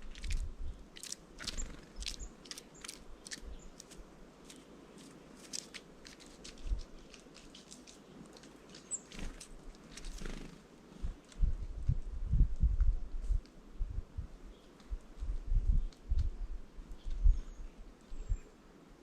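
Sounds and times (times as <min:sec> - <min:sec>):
birds pecking and cracking seeds: 0:00.0 - 0:11.4, 0:14.6 - 0:17.2
faint high bird chirps: 0:08.7 - 0:09.3, 0:16.9 - 0:18.6.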